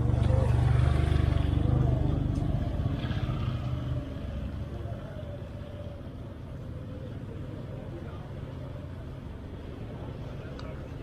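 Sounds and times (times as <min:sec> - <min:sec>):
motor vehicle passing: 0:00.0 - 0:06.0
street traffic noise: 0:00.0 - 0:11.0.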